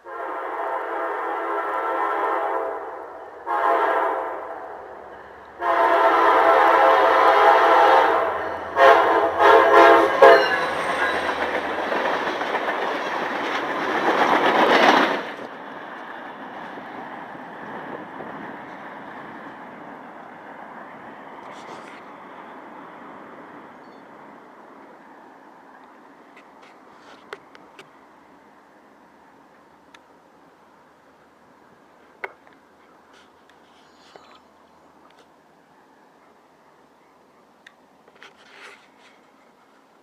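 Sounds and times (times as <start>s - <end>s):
locomotive air horn blasts: 0.0s - 11.7s
rumble of train cars: 0.0s - 40.0s
train passing with clatter: 0.0s - 40.0s.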